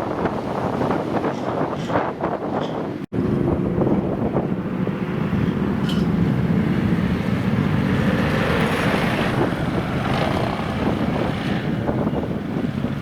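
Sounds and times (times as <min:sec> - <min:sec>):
old motorcycle engines running: 0:03.2 - 0:13.0.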